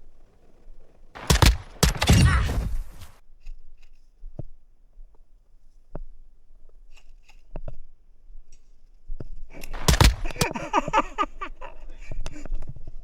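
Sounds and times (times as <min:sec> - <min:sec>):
sharp clicks: 0:01.2 - 0:03.2, 0:09.6 - 0:10.7.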